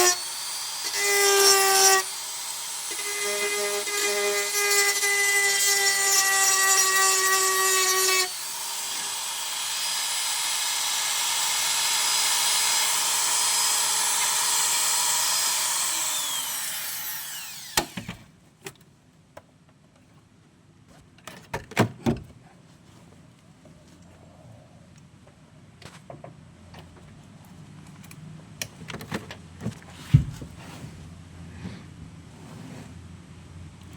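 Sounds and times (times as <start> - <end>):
electric grinder grinding steel: 0.0 - 18.0.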